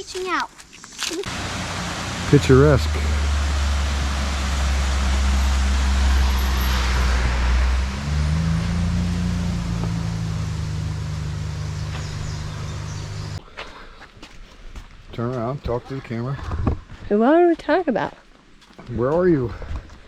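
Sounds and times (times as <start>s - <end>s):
steady rushing noise: 1.3s - 13.4s
vehicle engine running: 1.3s - 13.4s.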